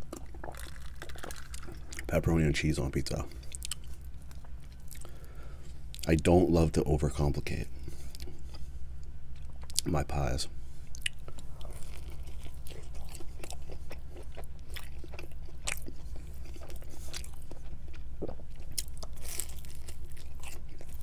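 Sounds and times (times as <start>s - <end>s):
close chewing with mouth clicks: 0.0s - 2.1s, 3.3s - 5.2s, 10.9s - 21.0s
steady low hum: 0.0s - 21.0s.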